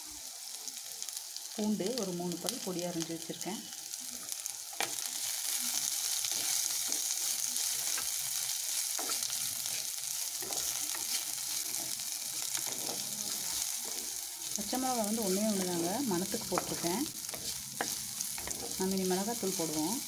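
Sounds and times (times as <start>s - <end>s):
onions sizzling in hot oil: 0.0s - 20.0s
spatula stirring: 4.8s - 20.0s.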